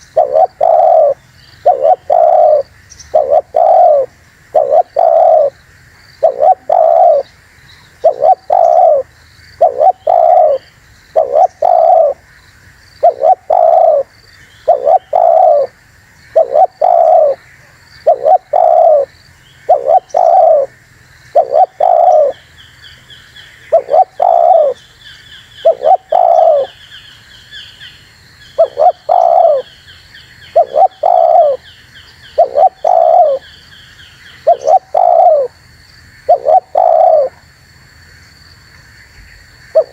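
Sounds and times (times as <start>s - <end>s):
dove cooing: 0.0s - 5.6s, 6.2s - 7.3s, 8.0s - 12.3s, 13.0s - 22.4s, 23.7s - 24.8s, 25.6s - 26.8s, 28.6s - 29.7s, 30.5s - 33.6s, 34.4s - 35.6s, 36.2s - 37.4s
small bird chirping: 0.0s - 35.6s.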